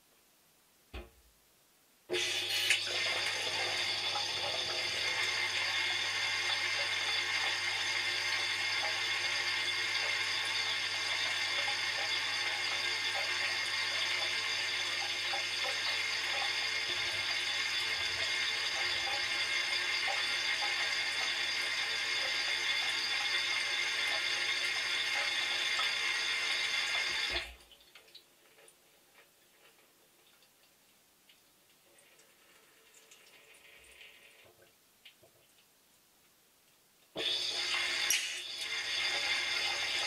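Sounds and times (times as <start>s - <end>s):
water spraying inside dishwasher: 37.2s - 40.0s.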